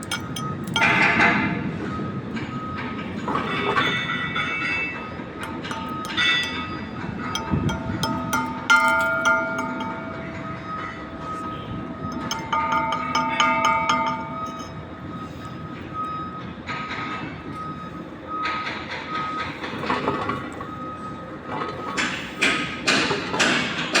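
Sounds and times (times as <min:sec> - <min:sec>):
ringing metal taps: 0:00.0 - 0:01.6, 0:02.3 - 0:17.2, 0:21.5 - 0:24.0
low workshop hum: 0:00.0 - 0:24.0.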